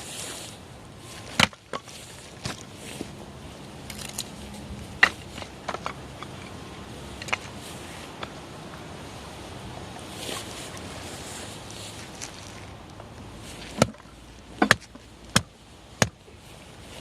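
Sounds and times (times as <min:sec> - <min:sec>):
soft rustle: 0:00.0 - 0:17.0
sharp wooden knocks: 0:14.6 - 0:16.2.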